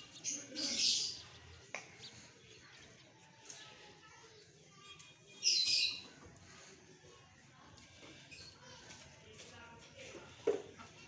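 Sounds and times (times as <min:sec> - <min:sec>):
birds chirping: 0:00.0 - 0:09.1.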